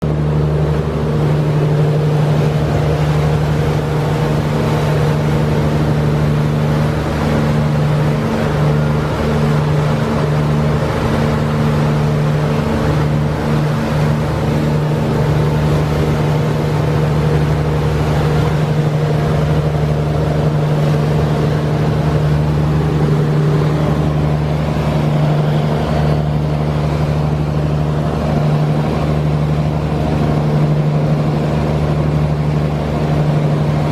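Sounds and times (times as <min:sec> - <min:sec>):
boat engines droning: 0:00.0 - 0:33.9
water wash noise: 0:00.0 - 0:33.9.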